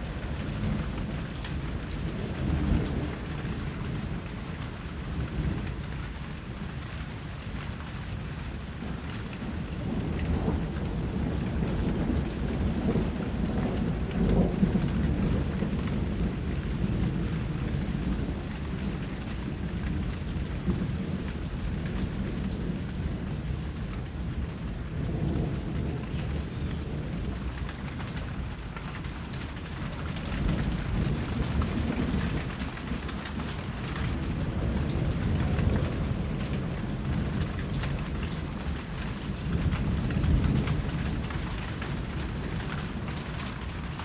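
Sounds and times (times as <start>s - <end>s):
thunder rumbling: 0.0s - 7.5s, 8.1s - 44.0s
steady rain: 0.0s - 44.0s.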